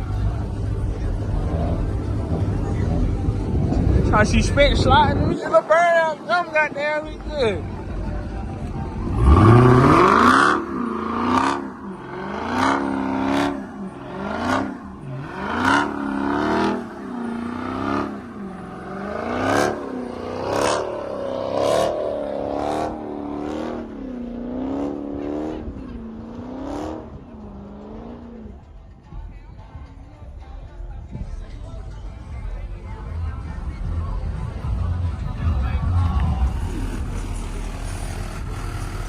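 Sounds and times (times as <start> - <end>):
car engine revving hard: 9.0 - 28.5, 36.0 - 39.0.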